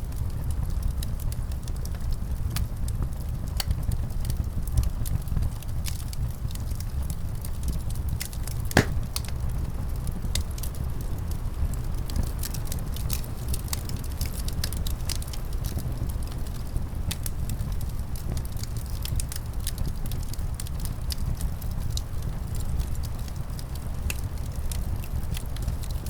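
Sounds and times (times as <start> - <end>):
wood fire crackling: 8.1 - 9.3, 12.0 - 26.0
loud fire pop: 8.8 - 9.3.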